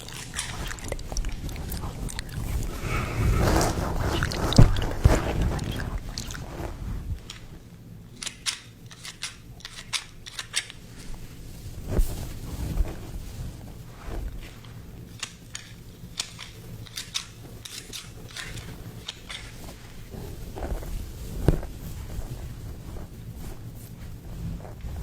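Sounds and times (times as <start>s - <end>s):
soft handling bumps: 18.6s - 25.0s.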